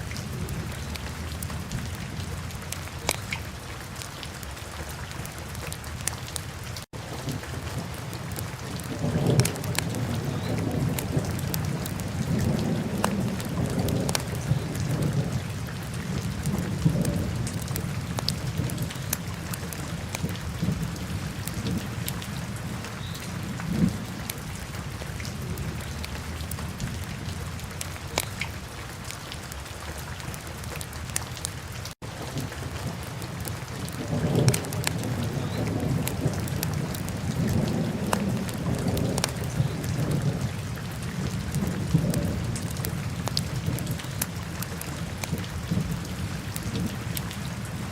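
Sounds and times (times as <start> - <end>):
logs crackling and popping: 3.0 - 3.4, 27.8 - 28.4, 38.0 - 39.4.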